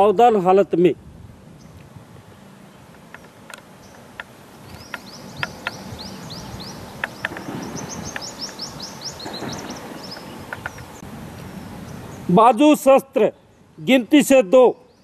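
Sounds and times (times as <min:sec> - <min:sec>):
outdoor background noise: 0:00.0 - 0:15.0
sharp ticks: 0:02.9 - 0:11.0
bird singing high notes: 0:04.7 - 0:11.0.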